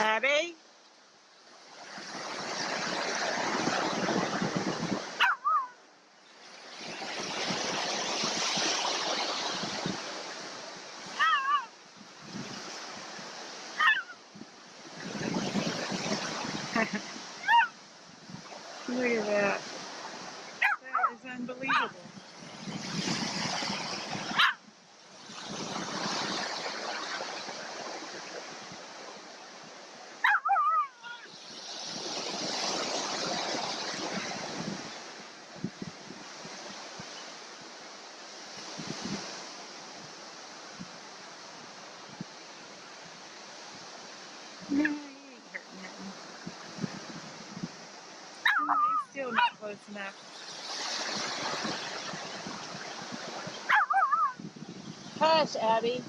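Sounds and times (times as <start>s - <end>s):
surf breaking on beach: 1.4s - 56.0s
dog yelp: 5.2s - 5.8s, 11.2s - 11.7s, 13.8s - 14.2s, 17.4s - 17.8s, 20.6s - 21.1s, 24.4s - 24.6s, 30.2s - 31.3s, 48.4s - 49.6s, 53.7s - 54.4s.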